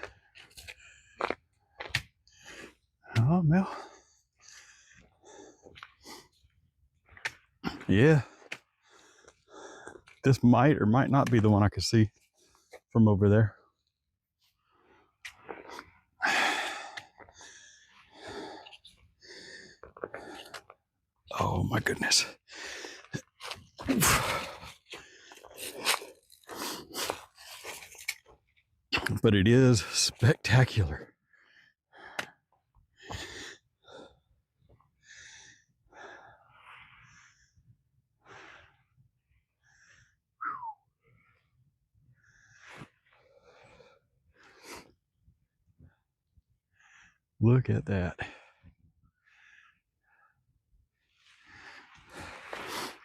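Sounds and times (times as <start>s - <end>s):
man breathing hard: 16.2s - 20.6s.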